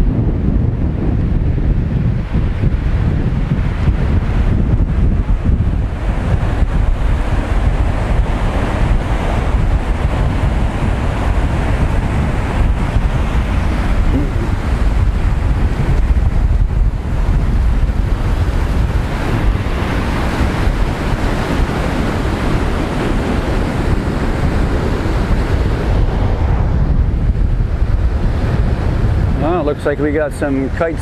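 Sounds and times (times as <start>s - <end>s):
heavy surf breaking: 0.0s - 31.0s
wind buffeting microphone: 0.0s - 31.0s.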